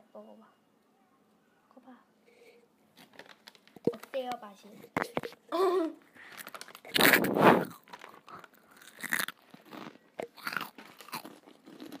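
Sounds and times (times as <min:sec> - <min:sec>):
shrimp crackers crunching: 0:03.0 - 0:04.1, 0:06.2 - 0:12.0.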